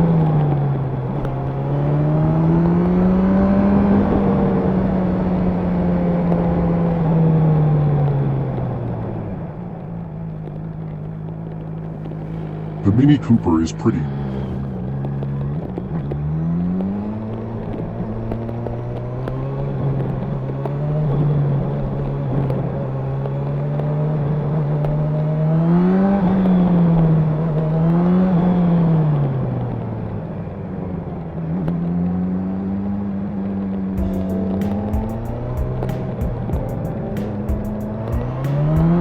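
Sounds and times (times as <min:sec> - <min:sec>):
motorcycle engine revving: 0:33.8 - 0:39.0.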